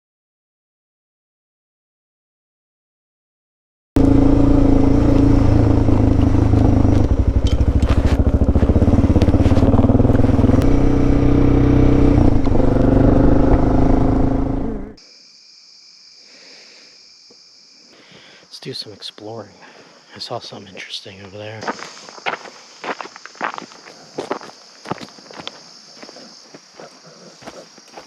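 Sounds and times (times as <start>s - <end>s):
motorcycle engine running: 4.0s - 15.0s
sharp clicks and rattles: 5.8s - 10.7s.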